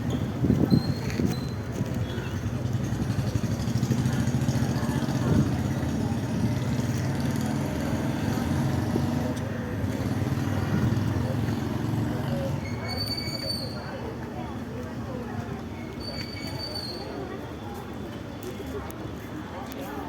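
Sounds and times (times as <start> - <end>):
vehicle engine rumbling: 0.0 - 13.8.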